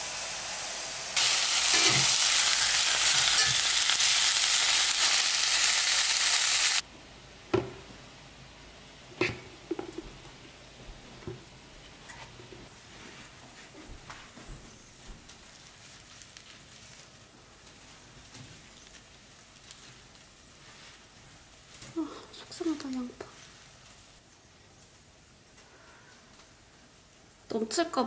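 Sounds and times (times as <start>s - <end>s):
patties sizzling in a skillet: 0.0s - 6.8s
deep fryer frying hiss: 0.0s - 6.9s.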